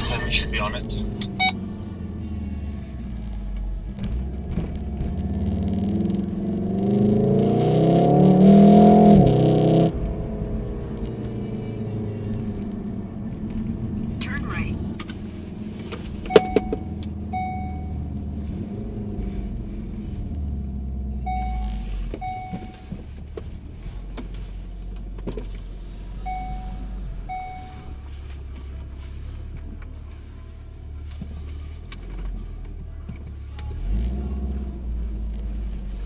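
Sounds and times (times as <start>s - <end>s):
short electronic beeps: 0.0s - 1.6s, 16.3s - 18.1s, 21.3s - 22.9s, 26.2s - 28.0s
car engine and road rumble: 0.0s - 36.0s.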